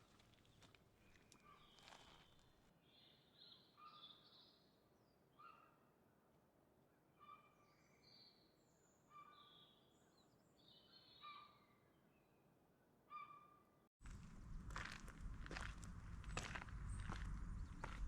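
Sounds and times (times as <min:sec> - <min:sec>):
songbird singing: 0:00.5 - 0:04.5, 0:14.1 - 0:18.0.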